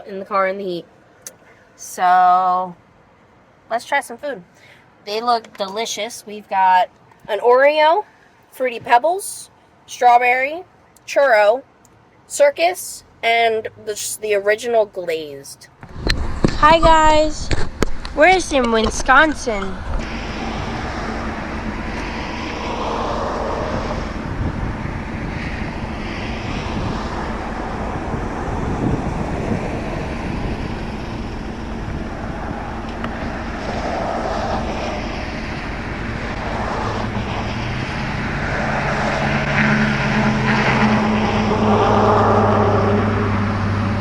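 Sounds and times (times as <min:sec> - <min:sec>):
low engine hum: 0:15.8 - 0:44.0
motor vehicle engine rumble: 0:15.8 - 0:44.0.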